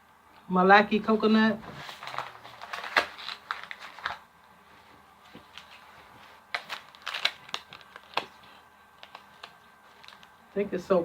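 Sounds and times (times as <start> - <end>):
paper label crinkling: 1.7 - 4.3, 5.2 - 10.4.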